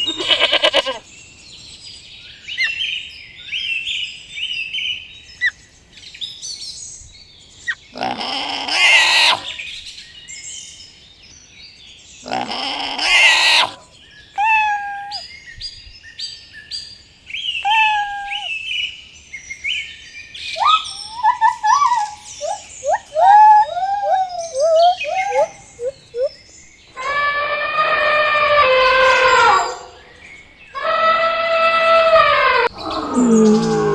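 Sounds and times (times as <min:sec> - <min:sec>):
birds chirping and calling: 0:07.6 - 0:09.8, 0:12.2 - 0:15.3, 0:17.4 - 0:18.8, 0:20.5 - 0:27.3, 0:28.3 - 0:33.9.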